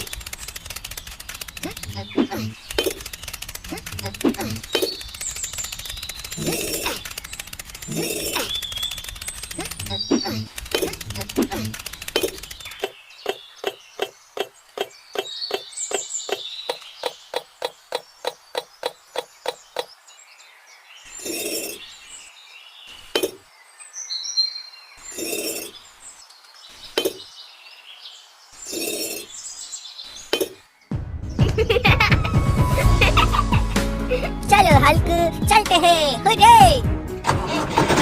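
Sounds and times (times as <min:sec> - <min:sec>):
rapid sharp tapping: 0:00.0 - 0:12.9
knocks and scrapes: 0:37.2 - 0:38.0.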